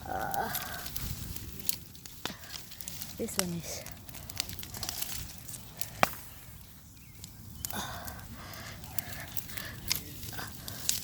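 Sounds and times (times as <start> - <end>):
breathy rustle: 0.0 - 1.5, 7.7 - 11.0
bonfire crackling: 0.0 - 11.0
loud wood crack: 0.0 - 11.0.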